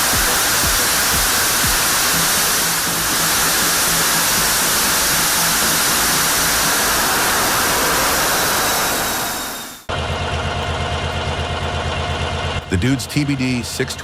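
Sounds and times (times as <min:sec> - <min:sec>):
jet engine roaring: 0:00.0 - 0:09.9.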